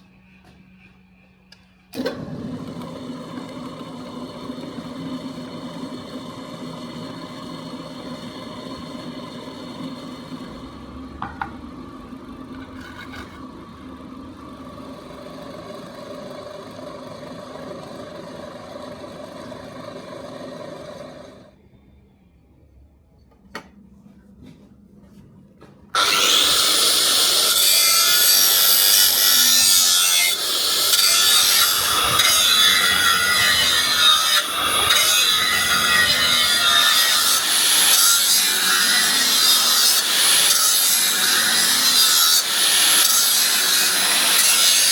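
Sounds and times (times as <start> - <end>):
workshop machine humming: 0.0 - 44.9
power tool grinding material: 2.0 - 10.8, 26.0 - 44.9.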